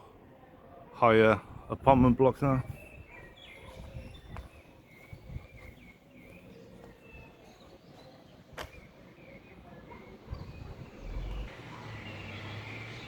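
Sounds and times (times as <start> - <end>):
faint bird chirps: 2.6 - 13.0.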